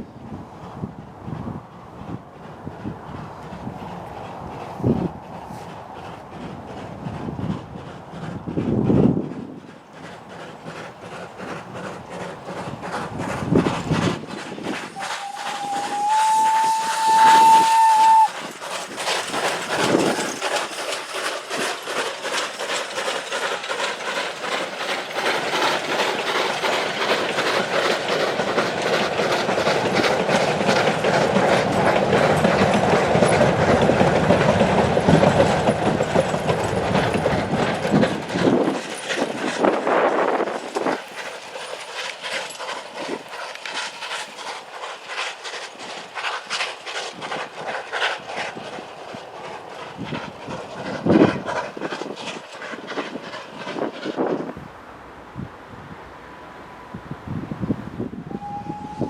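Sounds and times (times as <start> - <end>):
train wheels clicking over rail joints: 0.2 - 55.4
steam locomotive whistle: 15.0 - 18.4, 58.2 - 59.0.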